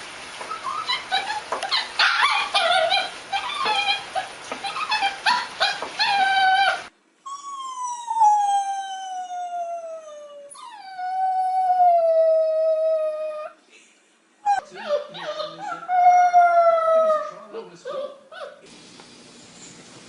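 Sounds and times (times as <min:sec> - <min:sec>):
dog yipping: 0:00.4 - 0:09.6, 0:14.4 - 0:18.7
dog howling: 0:00.5 - 0:13.6, 0:14.5 - 0:18.2.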